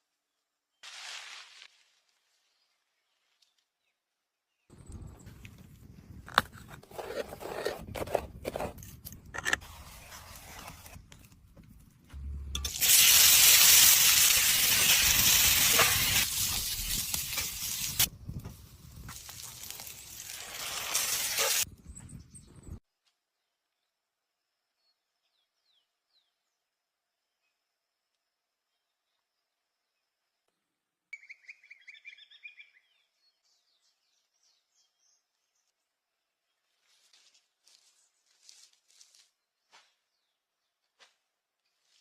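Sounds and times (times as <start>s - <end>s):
handling clicks and scrapes: 5.3s - 12.0s
loud hiss: 12.6s - 18.1s.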